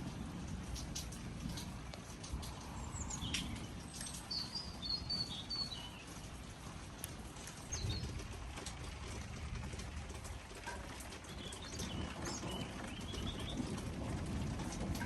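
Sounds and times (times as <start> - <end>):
low rumbling background noise: 0.0 - 15.0
birds chirping: 2.0 - 6.6, 7.6 - 8.3, 11.2 - 13.8.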